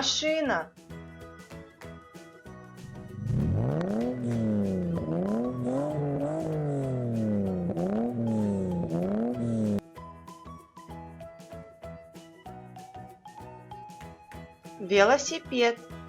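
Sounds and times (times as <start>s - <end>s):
light background music: 0.0s - 16.0s
car engine revving: 2.8s - 9.8s.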